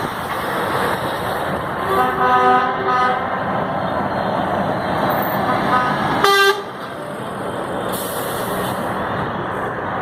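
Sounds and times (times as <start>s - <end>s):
heavy trucks rumbling past: 0.0s - 10.0s
truck horn: 1.8s - 3.3s, 5.4s - 6.8s.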